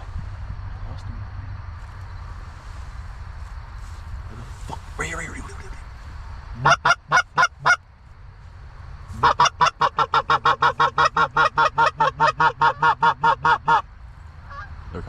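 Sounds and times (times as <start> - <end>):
goose honking: 6.6 - 7.8, 9.1 - 13.8, 14.4 - 14.7.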